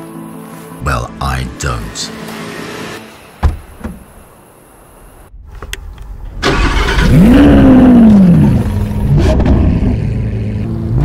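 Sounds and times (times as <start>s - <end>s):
car engine starting and idling: 5.7s - 11.0s.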